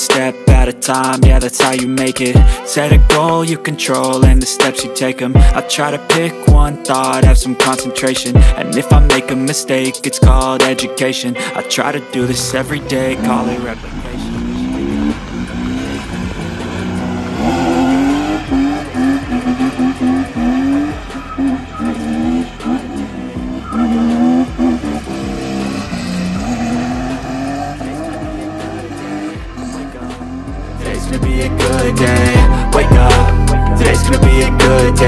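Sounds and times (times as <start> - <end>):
car engine revving: 12.1 - 35.0.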